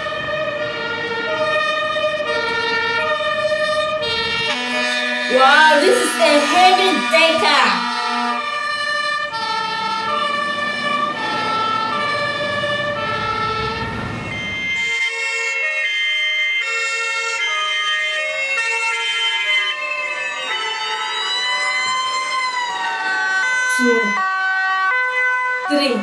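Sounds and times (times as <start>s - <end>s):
engine and road rumble: 0.0s - 5.3s, 7.8s - 16.0s
fire truck sirens: 0.0s - 26.0s.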